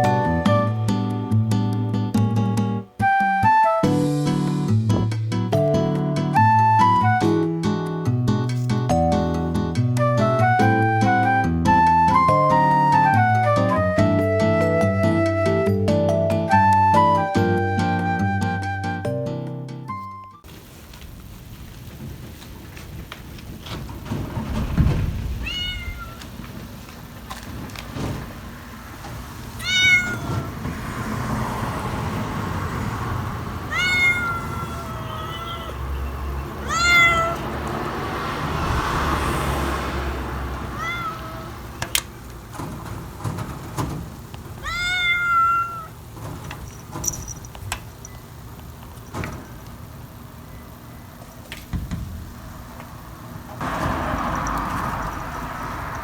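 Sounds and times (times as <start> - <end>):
cat meowing: 25.4 - 26.4, 29.5 - 30.6, 33.7 - 37.6, 40.7 - 41.7, 44.6 - 46.0.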